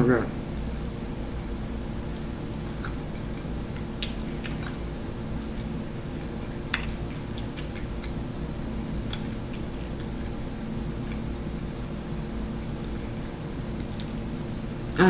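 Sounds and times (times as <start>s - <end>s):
steady low hum: 0.0s - 15.0s
person chewing: 2.1s - 11.4s, 13.8s - 15.0s
mouth clicks and smacks: 2.2s - 5.6s, 6.6s - 10.4s, 13.8s - 14.2s.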